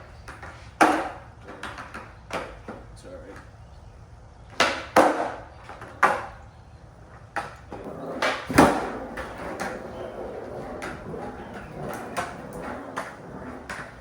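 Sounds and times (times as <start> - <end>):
skateboard knocking and clacking: 0.2 - 3.5, 4.5 - 6.4, 7.1 - 14.0
skateboard rattling: 7.1 - 14.0.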